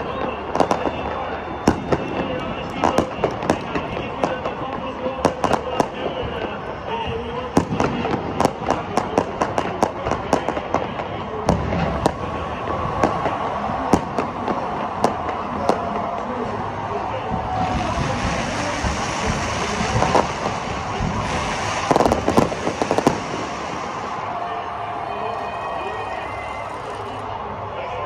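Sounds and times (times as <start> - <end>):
crackling fireworks bangs: 0.0 - 25.0
fireworks bangs: 0.0 - 26.6
fireworks hissing: 11.4 - 24.4.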